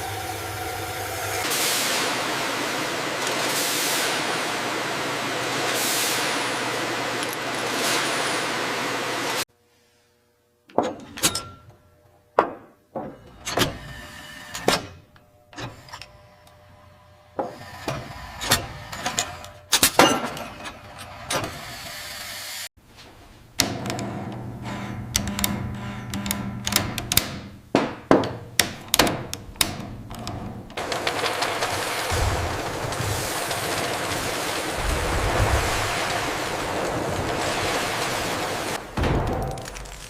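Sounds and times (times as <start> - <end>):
factory machine noise: 0.0 - 9.4, 28.4 - 40.0.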